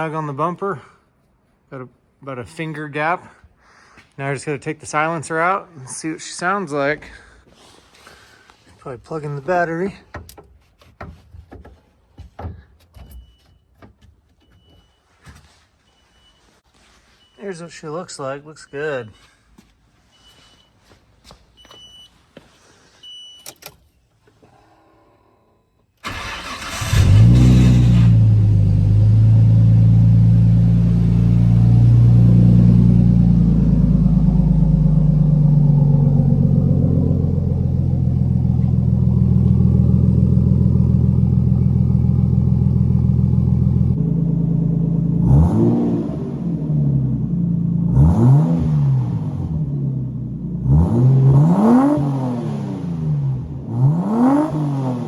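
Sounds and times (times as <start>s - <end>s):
car engine cranking and idling: 26.0s - 54.9s
engine revving with throttle blips: 26.0s - 55.0s.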